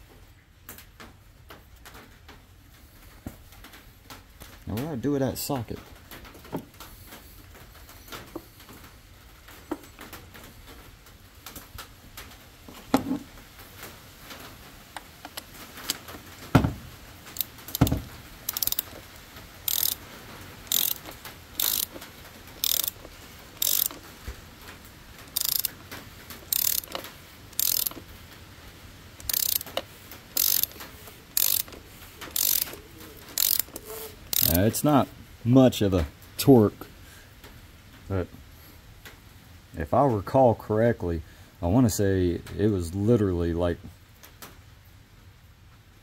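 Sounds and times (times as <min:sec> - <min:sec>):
socket knocking: 0:16.6 - 0:16.9, 0:17.8 - 0:18.1
hand ratchet clicking: 0:17.3 - 0:24.1, 0:25.3 - 0:28.1, 0:29.2 - 0:34.8.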